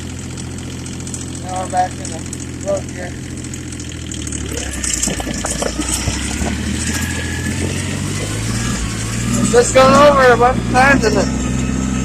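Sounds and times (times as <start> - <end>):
tractor engine running: 0.0 - 12.0
tyres crunching over slush: 4.4 - 11.3.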